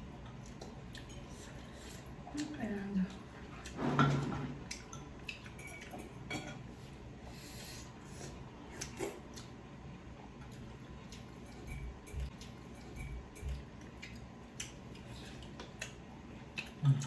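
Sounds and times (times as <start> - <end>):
soft chewing: 0.0 - 3.8, 4.5 - 17.0
cutlery clicking on plate: 11.4 - 13.6.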